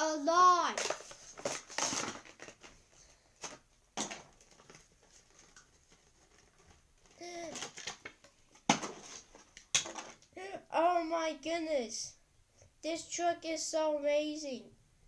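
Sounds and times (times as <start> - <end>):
packaging rustling: 0.7 - 10.3.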